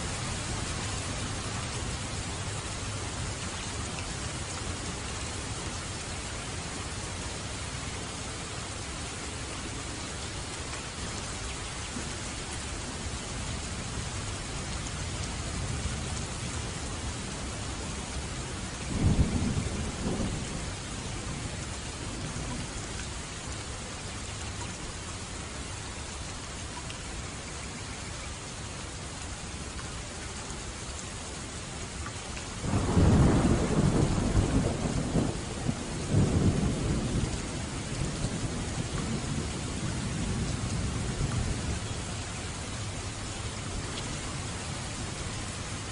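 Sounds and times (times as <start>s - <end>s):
heavy rain: 0.0s - 45.9s
thunder rumbling: 18.8s - 21.6s, 32.6s - 42.0s.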